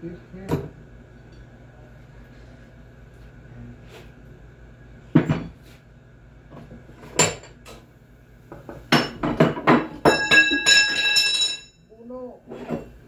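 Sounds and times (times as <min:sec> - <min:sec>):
metal tools clanking: 0:09.0 - 0:11.8.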